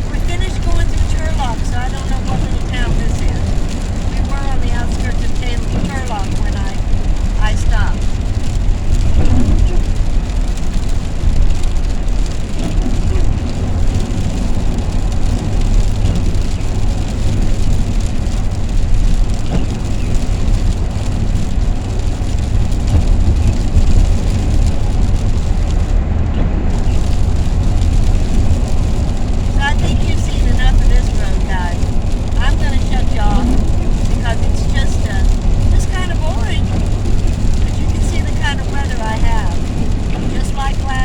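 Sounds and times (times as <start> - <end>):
road and engine rumble in van: 0.0 - 41.0.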